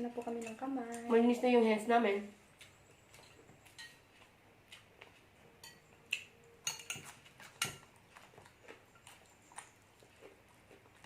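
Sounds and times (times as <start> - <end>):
utensils clinking against plates: 0.0 - 1.2, 3.1 - 4.2, 5.6 - 8.2.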